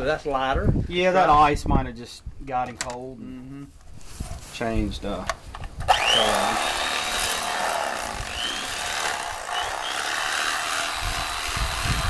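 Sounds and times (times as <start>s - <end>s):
electric fillet knife running: 5.9s - 12.0s.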